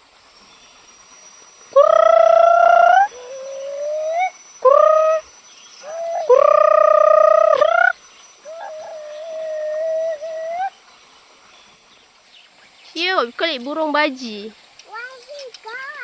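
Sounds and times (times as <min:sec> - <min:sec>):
bird calling: 0:01.6 - 0:14.4.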